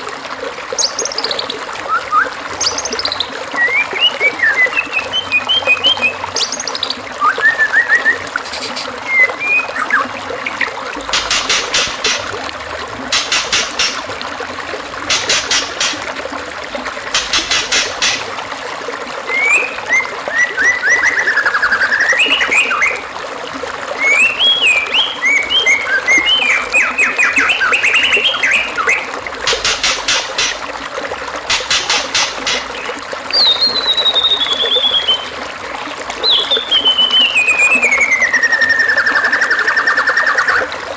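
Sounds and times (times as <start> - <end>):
running water trickle: 0.0 - 40.9
bird whistled gliding notes: 0.8 - 10.7, 19.3 - 23.0, 24.0 - 30.5, 31.8 - 35.4, 36.2 - 40.7
songbird buzzy trills: 0.8 - 12.3, 19.3 - 23.0, 24.0 - 30.7, 31.5 - 35.4, 36.2 - 40.7.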